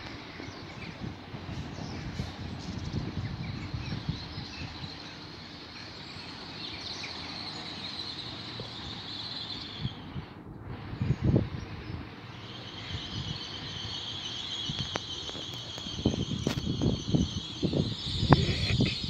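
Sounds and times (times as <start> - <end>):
high squeal of train wheels: 0.0 - 19.0
train rumbling: 0.0 - 19.0.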